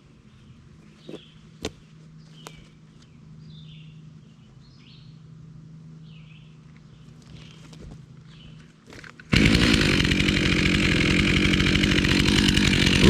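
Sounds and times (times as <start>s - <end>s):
birds chirping: 0.0s - 5.3s.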